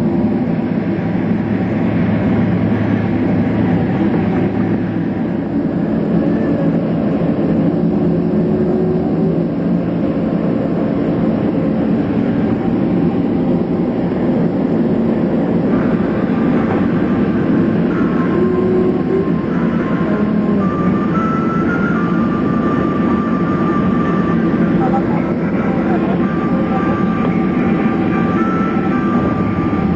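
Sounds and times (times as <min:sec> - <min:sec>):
aircraft cabin rumble: 0:00.0 - 0:29.9
low jet engine hum: 0:00.0 - 0:29.9.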